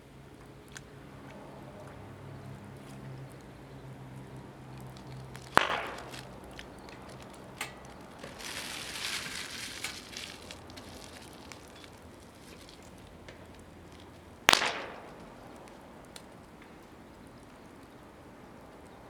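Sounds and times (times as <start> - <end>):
wood fire crackling: 2.5 - 19.0
fire popping: 4.1 - 18.0.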